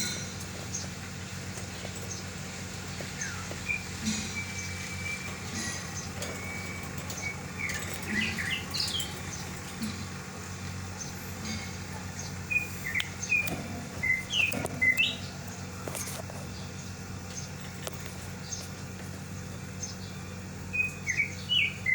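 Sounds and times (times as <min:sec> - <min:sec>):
bird chirping: 0:00.0 - 0:21.9.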